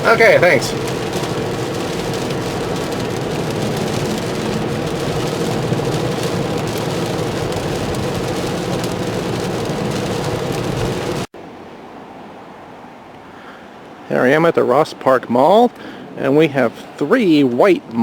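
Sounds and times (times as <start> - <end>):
road and tyre noise in car: 0.0 - 14.2.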